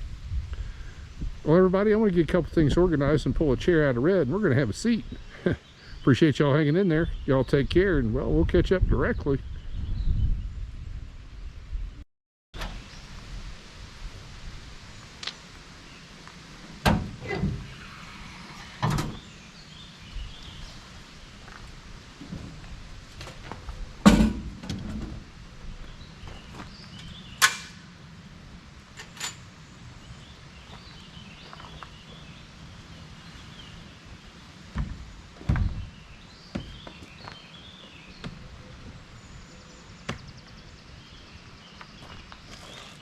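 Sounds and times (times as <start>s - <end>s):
outdoor background noise: 0.0s - 12.0s, 12.6s - 43.0s
thumps and knocks: 34.7s - 35.9s.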